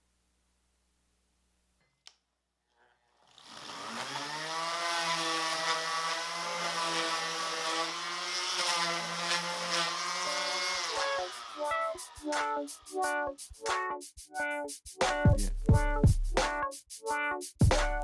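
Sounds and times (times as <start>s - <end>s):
power tool motor whining: 3.3s - 12.2s.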